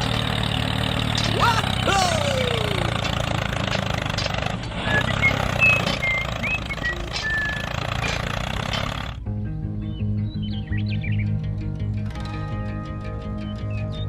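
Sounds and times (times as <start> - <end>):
small engine running: 0.0 - 9.2.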